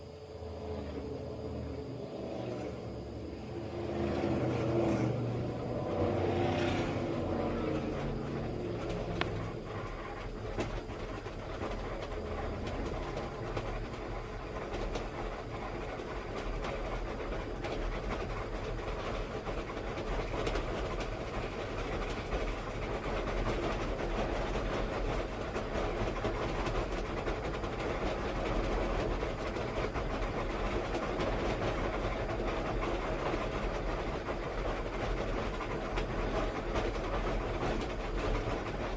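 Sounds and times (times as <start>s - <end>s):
vehicle rumble: 0.4s - 9.8s
fast continuous clatter: 4.0s - 38.9s.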